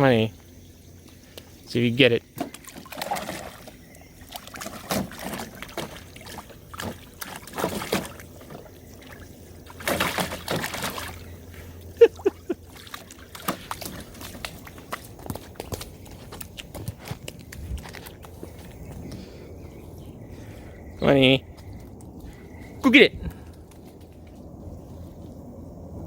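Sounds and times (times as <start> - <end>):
water splashing in a pool: 2.1 - 18.7.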